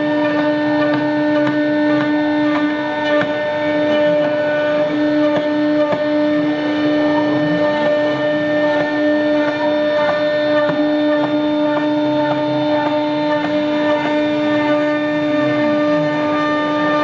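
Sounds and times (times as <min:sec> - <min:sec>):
low machine hum: 0:00.0 - 0:17.0
router spindle whining: 0:00.0 - 0:17.0.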